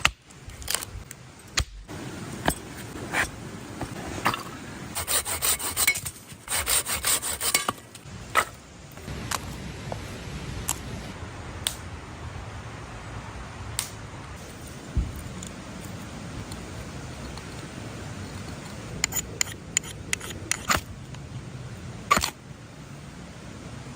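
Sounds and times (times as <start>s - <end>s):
knife scraping wood stick: 2.4s - 8.6s, 18.5s - 20.9s.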